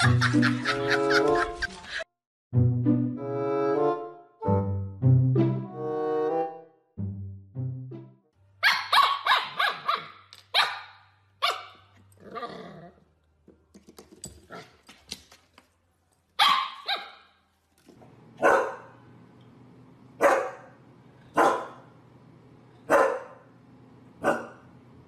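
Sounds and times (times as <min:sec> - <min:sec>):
dog barking: 0:08.6 - 0:11.8, 0:16.4 - 0:17.3, 0:18.4 - 0:19.0, 0:20.2 - 0:20.8, 0:21.4 - 0:21.8, 0:22.9 - 0:23.4, 0:24.2 - 0:24.6
puppy yipping: 0:08.6 - 0:11.8, 0:16.4 - 0:17.3.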